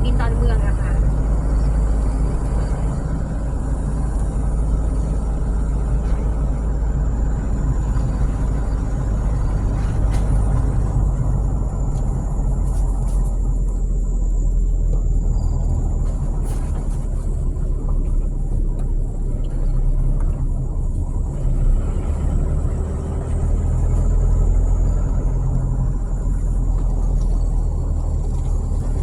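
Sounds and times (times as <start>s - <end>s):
car engine and tyres rumbling: 0.0s - 29.0s.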